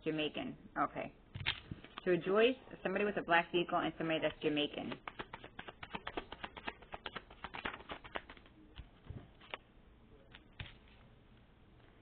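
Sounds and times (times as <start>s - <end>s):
cards being shuffled: 4.2s - 9.7s, 10.3s - 11.0s.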